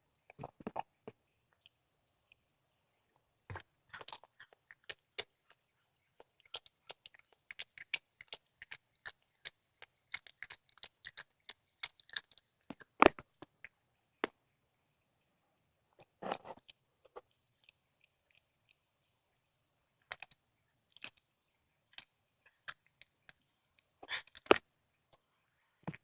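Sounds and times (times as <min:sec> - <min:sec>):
cat chewing and crunching bone: 0:03.5 - 0:13.8, 0:16.0 - 0:25.2.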